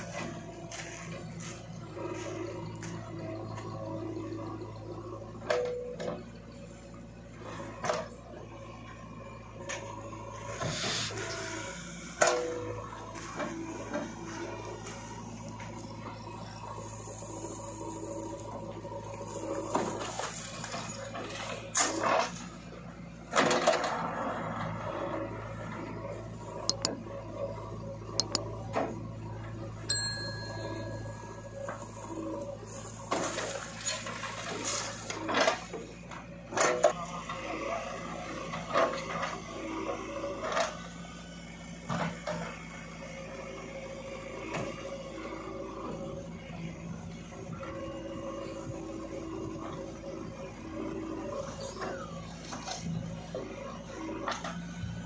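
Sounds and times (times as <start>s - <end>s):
diesel engine running: 0.0s - 55.0s
high ringing tone: 29.8s - 32.9s
sharp metallic clinks: 29.9s - 31.9s.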